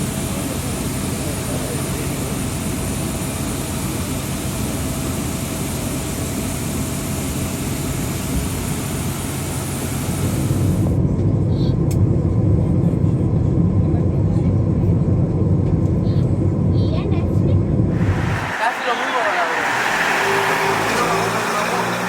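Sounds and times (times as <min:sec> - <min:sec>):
deep engine rumble: 0:17.9 - 0:22.0
engine noise with high whine: 0:17.9 - 0:22.0.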